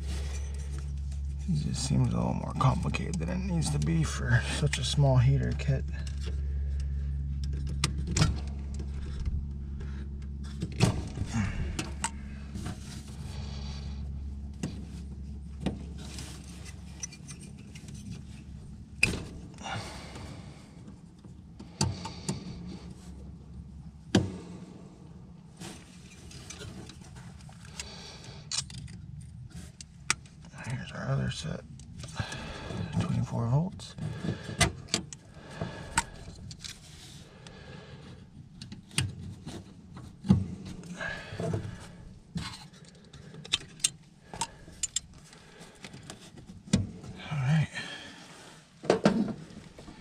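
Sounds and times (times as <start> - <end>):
low hum: 0.0 - 50.0
tools and wiring clinking: 15.6 - 19.2, 25.8 - 30.5, 42.4 - 46.8.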